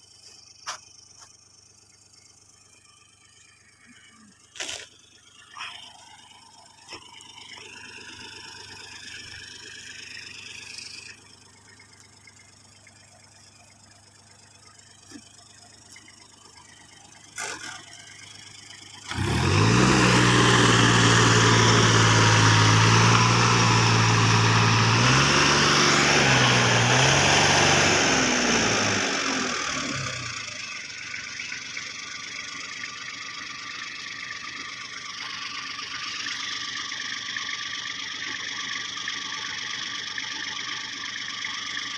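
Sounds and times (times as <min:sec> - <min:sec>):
heavy machine engine running: 0:17.4 - 0:31.1.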